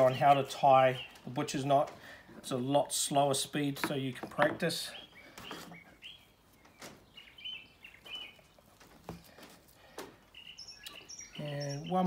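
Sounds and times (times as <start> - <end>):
faint bird chirps: 4.8 - 8.6, 10.3 - 12.0.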